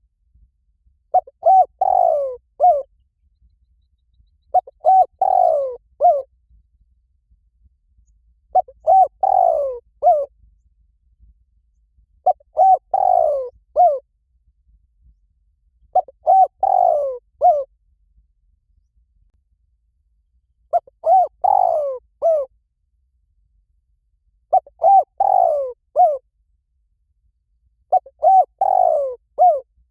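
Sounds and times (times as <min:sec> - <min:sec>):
dove cooing: 0:01.1 - 0:02.9, 0:04.5 - 0:06.3, 0:08.5 - 0:10.3, 0:12.2 - 0:14.0, 0:15.9 - 0:17.7, 0:20.7 - 0:22.5, 0:24.5 - 0:26.2, 0:27.9 - 0:29.7.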